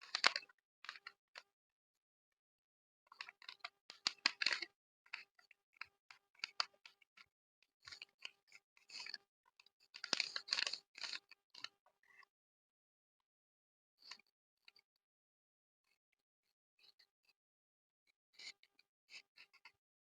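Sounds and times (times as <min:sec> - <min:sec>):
paper folding and crinkling: 0:04.0 - 0:04.6, 0:10.0 - 0:11.2.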